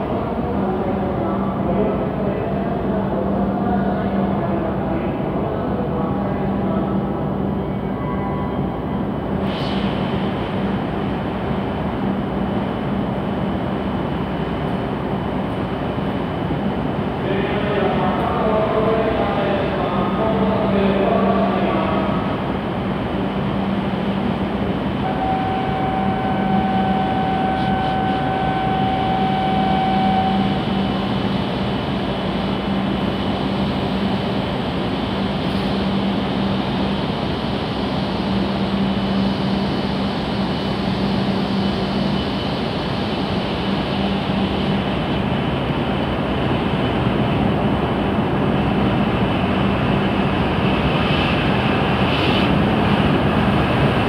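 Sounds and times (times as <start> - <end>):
station machine noise: 0.0 - 54.0
train equipment humming: 0.0 - 54.0
steady electronic tone: 25.0 - 31.4.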